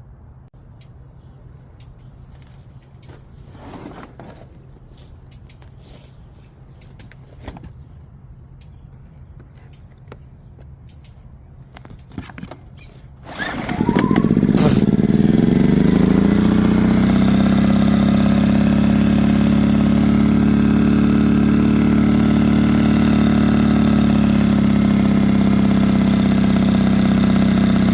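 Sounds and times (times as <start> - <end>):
generator engine starting and running: 13.0 - 27.9.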